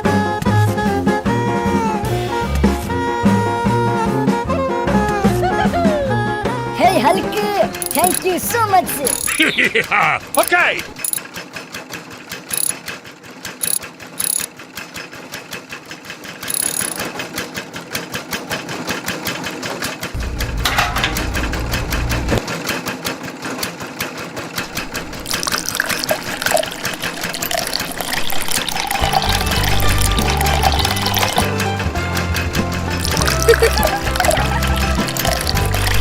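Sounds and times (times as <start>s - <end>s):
small motor mechanism ticking: 7.8s - 9.4s, 10.3s - 11.2s, 12.5s - 12.8s, 13.6s - 14.5s, 16.4s - 17.1s.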